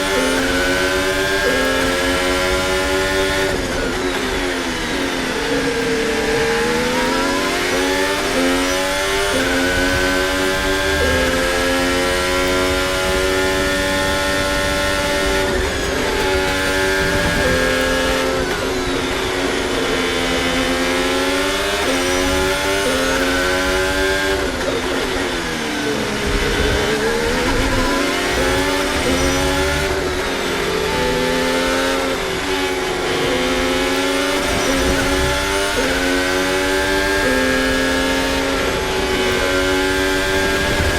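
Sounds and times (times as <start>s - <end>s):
racing car engine: 0.0s - 40.9s.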